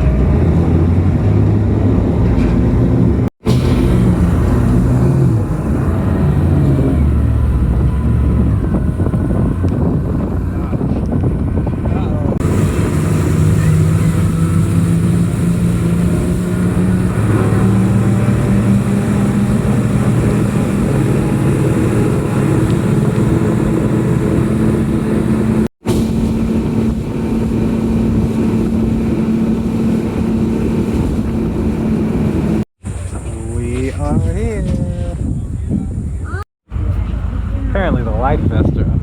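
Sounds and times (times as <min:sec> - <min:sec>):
outboard motors droning: 0:00.0 - 0:39.0.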